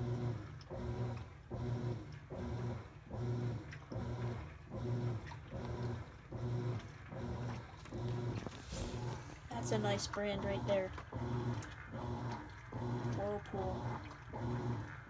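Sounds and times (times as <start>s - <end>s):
washing machine motor agitating: 0.0s - 15.0s.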